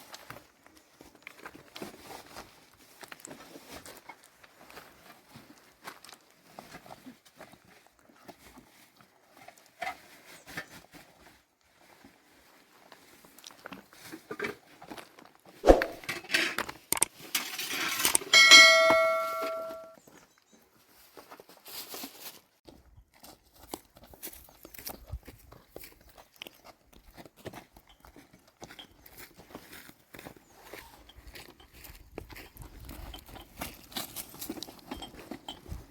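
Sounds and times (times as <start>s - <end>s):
rushing scraping noise: 15.6s - 16.1s
dishes clattering: 17.4s - 19.9s
struck vessel ringing: 18.3s - 19.9s.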